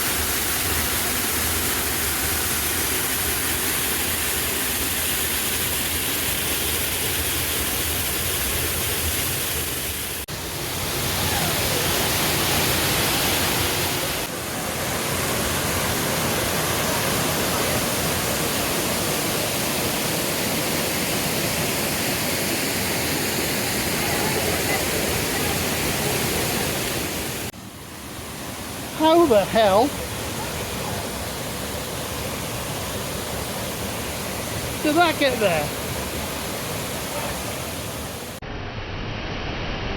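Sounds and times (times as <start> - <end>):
waterfall roaring: 0.0 - 38.4.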